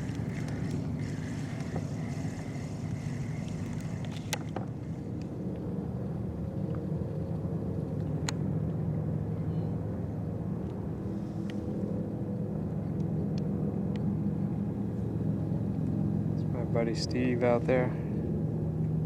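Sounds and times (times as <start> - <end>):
motor humming: 0.0 - 5.6.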